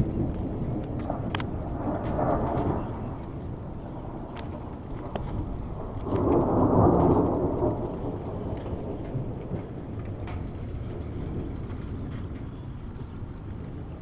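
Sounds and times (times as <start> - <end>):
thunder rumbling: 0.0 - 14.0.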